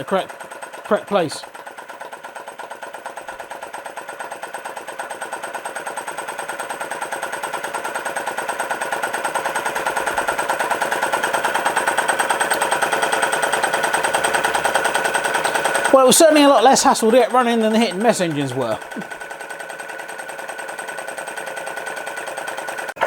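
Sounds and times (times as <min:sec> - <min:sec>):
model engine clicking: 0:00.0 - 0:23.0.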